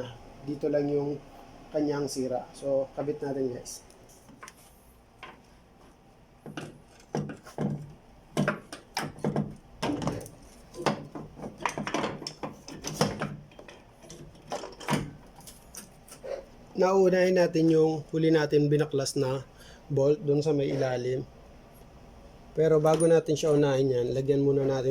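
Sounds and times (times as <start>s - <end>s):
hand tools and metal parts clinking: 8.4s - 16.3s, 22.8s - 23.6s.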